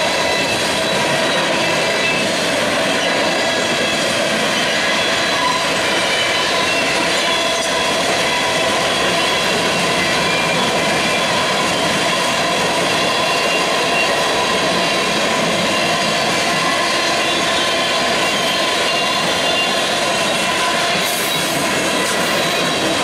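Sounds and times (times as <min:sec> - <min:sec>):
steel wheels running on rails: 0:00.0 - 0:23.0.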